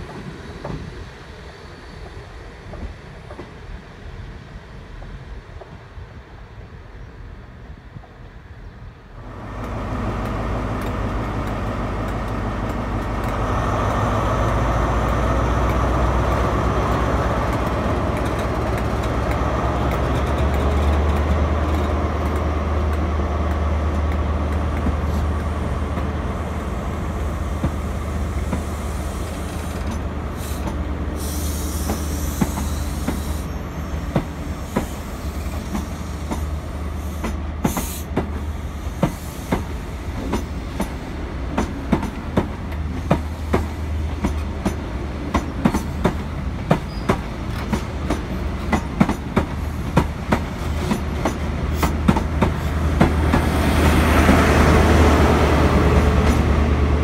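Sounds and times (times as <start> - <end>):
diesel train engine droning: 9.1 - 57.0
wheels clicking over rail joints: 39.0 - 53.6.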